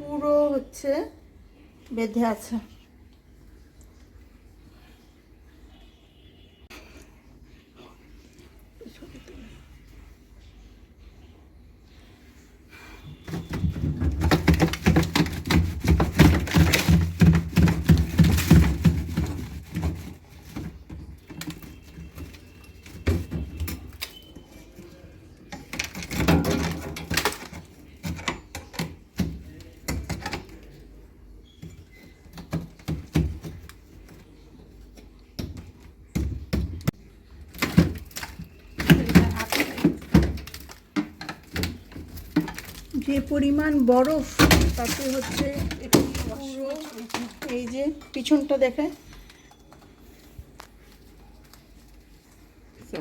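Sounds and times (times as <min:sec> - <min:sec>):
ice knocking and clattering in freezer: 0:13.0 - 0:49.9.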